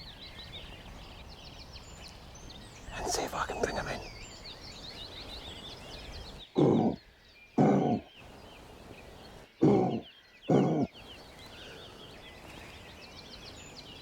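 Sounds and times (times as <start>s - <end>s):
faint birdsong: 0.0s - 14.0s
deer call grunts: 3.0s - 4.1s, 6.6s - 7.0s, 7.6s - 8.1s, 9.6s - 11.0s.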